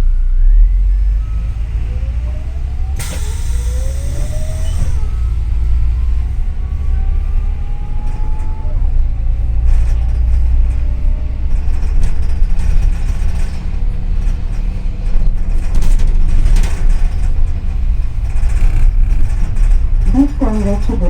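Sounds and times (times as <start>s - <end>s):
bus engine and road rumble: 0.0s - 21.0s
rattles and knocks: 8.0s - 21.0s.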